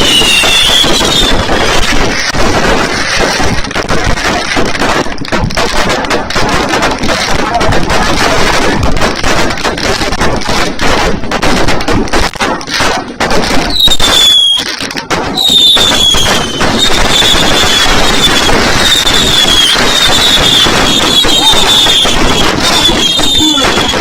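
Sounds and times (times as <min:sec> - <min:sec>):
fireworks crackling and popping: 0:00.0 - 0:24.0
high falling whistle: 0:15.4 - 0:24.0.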